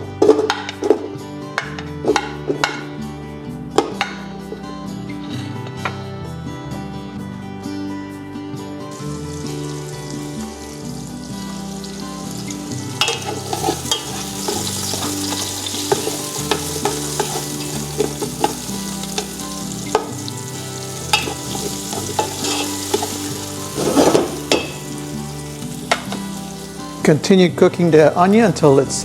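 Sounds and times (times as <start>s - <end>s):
onion sizzling in oil: 8.9s - 27.0s
utensil scraping a pan: 13.0s - 20.1s, 21.1s - 24.9s.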